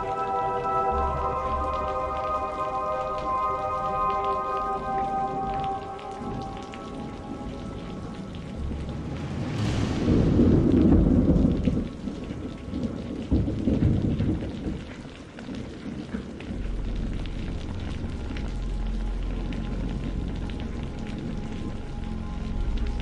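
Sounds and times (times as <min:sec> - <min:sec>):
rain hissing: 0:00.0 - 0:23.0
thunder crack and rumble: 0:05.5 - 0:23.0.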